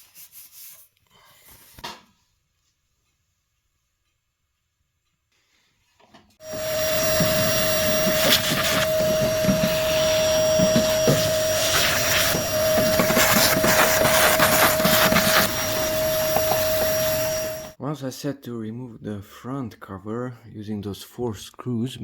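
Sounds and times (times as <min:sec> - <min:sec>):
vacuum cleaner whining: 0:06.4 - 0:17.8.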